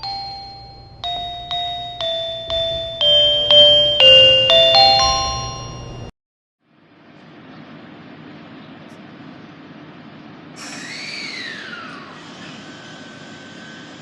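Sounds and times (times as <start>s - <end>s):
electronic bell-like chime tune: 0.0s - 6.1s.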